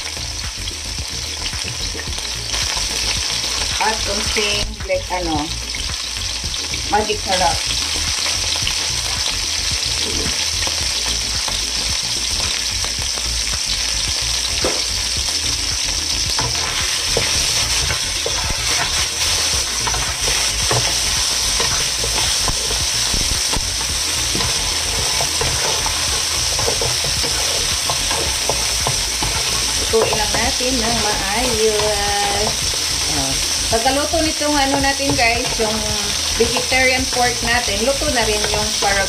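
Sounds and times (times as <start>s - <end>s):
vegetables sizzling in oil: 0.0s - 39.0s
wooden spatula scraping wok: 16.3s - 39.0s.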